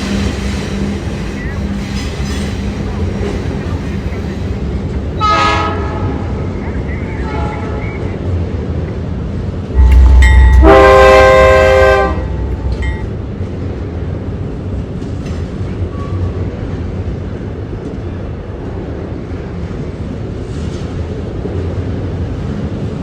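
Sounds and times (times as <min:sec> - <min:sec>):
train rumbling: 0:00.0 - 0:23.0
locomotive horn blast: 0:05.2 - 0:06.3, 0:09.8 - 0:13.0.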